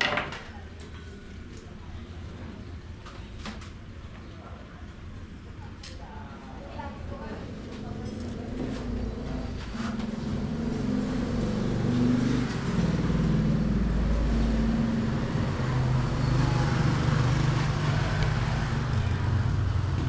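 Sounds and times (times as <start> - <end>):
engine running: 8.0 - 20.0.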